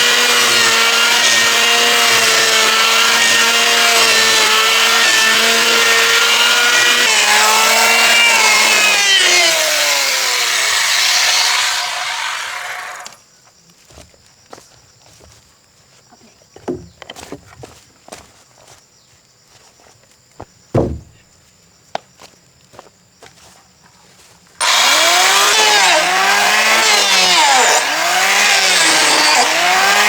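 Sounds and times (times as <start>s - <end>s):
power tool whining: 0.0s - 13.2s, 24.6s - 30.0s
faint knocks: 20.4s - 21.2s.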